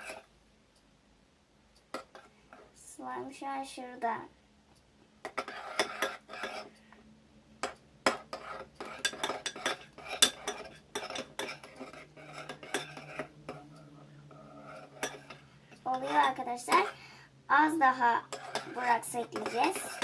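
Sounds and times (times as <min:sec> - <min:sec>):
spoon stirring thick slime: 0:05.3 - 0:06.7, 0:07.6 - 0:17.1, 0:17.8 - 0:20.0.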